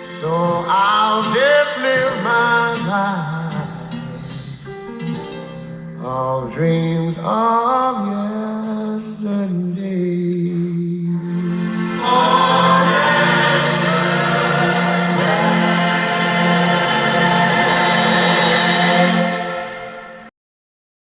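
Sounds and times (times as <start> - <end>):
choral singing: 11.3 - 20.3.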